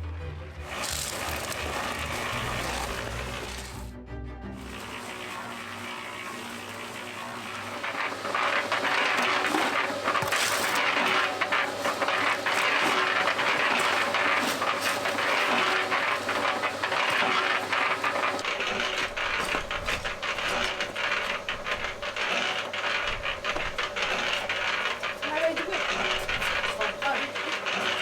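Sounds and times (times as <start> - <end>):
cement mixer motor hum: 0.0 - 28.0
concrete rattling in mixer drum: 0.6 - 3.9, 4.6 - 28.0.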